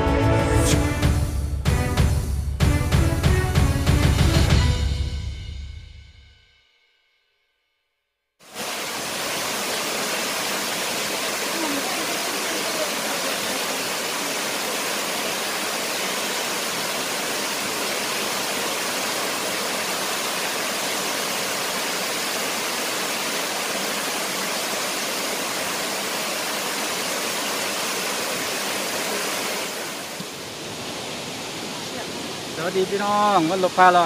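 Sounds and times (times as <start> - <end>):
waterfall roaring: 8.4 - 34.0.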